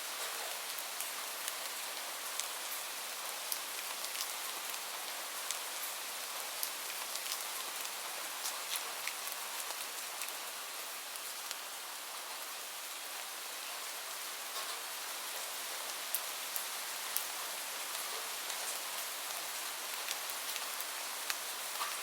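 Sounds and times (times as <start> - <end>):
raindrops ticking on a surface: 0.1 - 12.6, 13.4 - 22.0.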